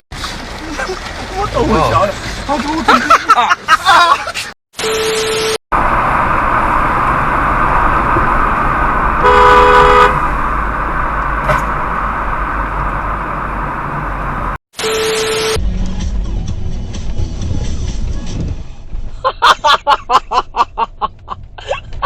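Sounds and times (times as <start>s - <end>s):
road traffic and engine noise: 0.0s - 22.0s
vehicle horn: 9.2s - 10.2s.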